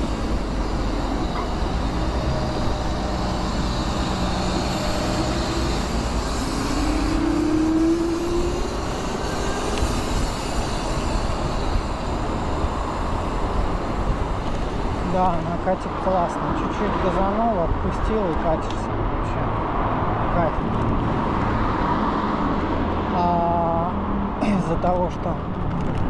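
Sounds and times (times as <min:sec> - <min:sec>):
wind rush and road noise: 0:00.0 - 0:26.0.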